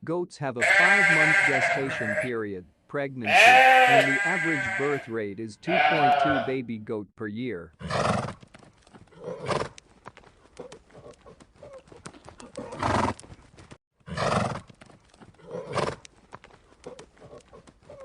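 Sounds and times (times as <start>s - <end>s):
animal calls: 3.3s - 5.1s
hooves clopping: 8.0s - 18.0s.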